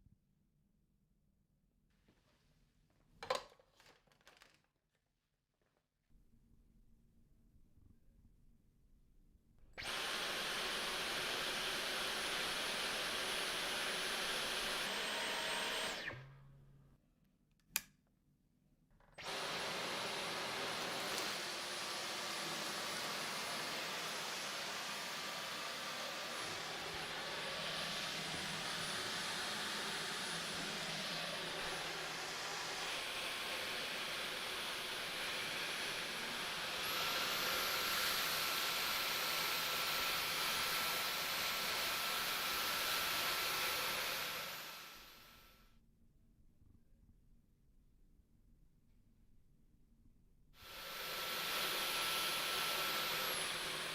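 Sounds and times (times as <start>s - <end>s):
stick vacuum running: 9.8s - 16.3s, 19.2s - 45.1s, 50.6s - 53.9s
airflow hiss: 50.6s - 53.9s.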